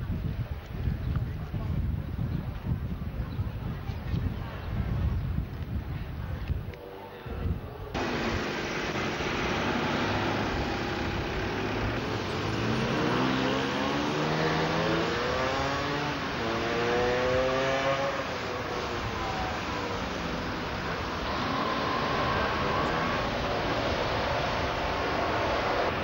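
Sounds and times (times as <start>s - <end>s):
road and wind noise: 0.0s - 26.0s
vehicle engine accelerating: 8.0s - 26.0s.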